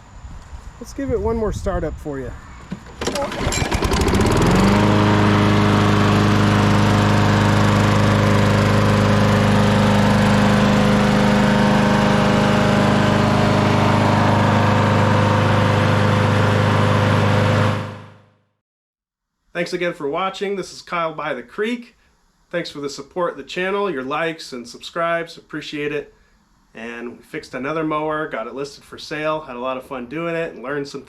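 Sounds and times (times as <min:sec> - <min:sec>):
mower engine running: 0:02.8 - 0:18.2.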